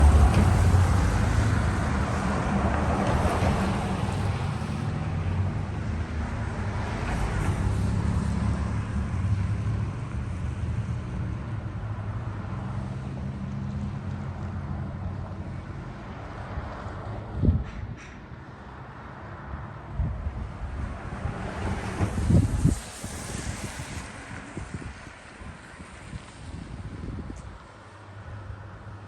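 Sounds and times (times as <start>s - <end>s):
tyres hissing on road: 0.0s - 11.7s, 20.6s - 29.0s
traffic engine hum: 0.0s - 29.0s.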